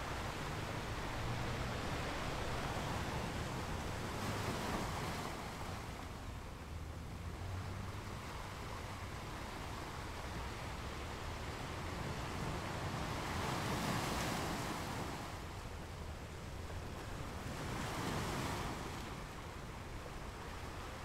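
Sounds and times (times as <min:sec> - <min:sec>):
surf: 0:00.0 - 0:21.0
wind: 0:00.0 - 0:21.0.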